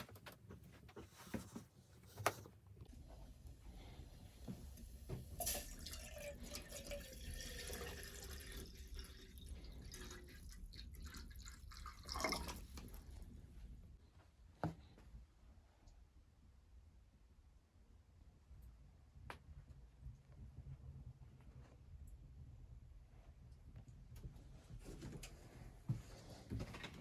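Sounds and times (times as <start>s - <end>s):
water trickling and dripping: 4.5s - 13.2s.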